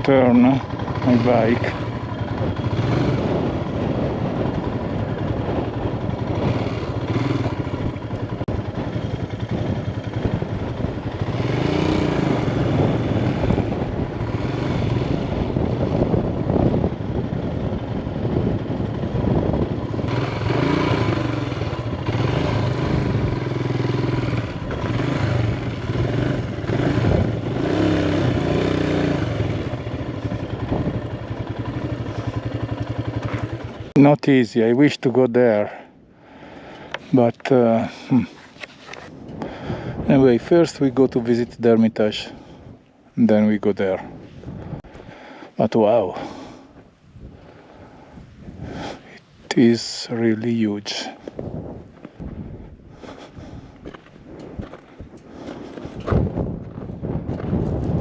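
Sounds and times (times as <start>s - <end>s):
motorbike engine revving: 0.0s - 34.0s.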